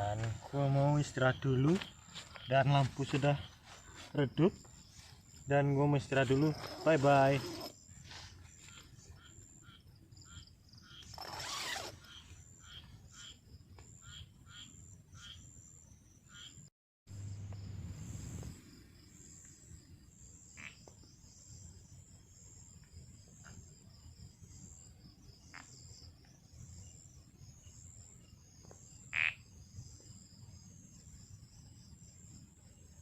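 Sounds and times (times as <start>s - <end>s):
insects chirping: 0.0s - 33.0s
frog-like calls: 8.6s - 15.6s, 16.3s - 16.7s, 20.5s - 20.9s, 29.1s - 29.5s.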